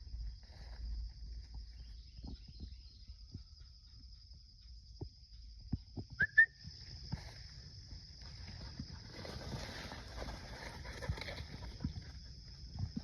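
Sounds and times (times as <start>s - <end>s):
insects droning: 0.0s - 13.0s
footsteps on a trail: 6.7s - 13.0s.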